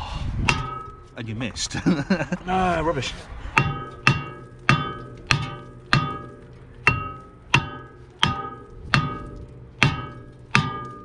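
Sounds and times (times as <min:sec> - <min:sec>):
mallet striking ringing metal disc: 0:00.5 - 0:01.2, 0:03.6 - 0:11.0.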